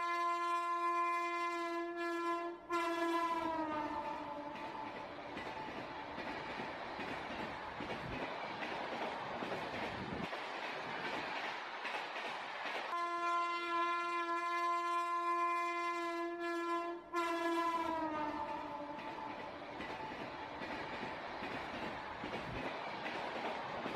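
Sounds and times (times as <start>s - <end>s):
train horn: 0.0s - 5.0s, 12.9s - 19.5s
freight train wagons rolling: 4.0s - 13.0s, 18.2s - 23.9s.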